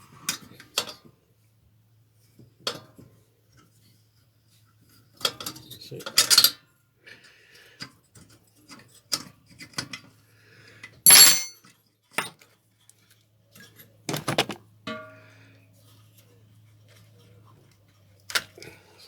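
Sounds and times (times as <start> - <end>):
loud metallic clank: 11.1 - 11.5
metal part ringing: 11.1 - 11.5
metal tools clicking and clinking: 11.1 - 11.5.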